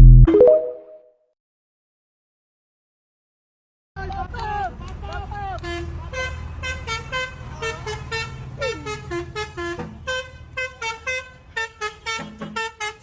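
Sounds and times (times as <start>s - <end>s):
truck engine rumble: 4.0s - 13.0s
truck horn short toots: 5.6s - 13.0s.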